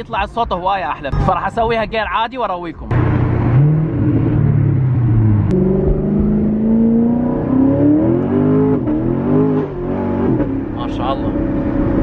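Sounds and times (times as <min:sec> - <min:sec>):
car engine accelerating hard: 0:02.9 - 0:12.0.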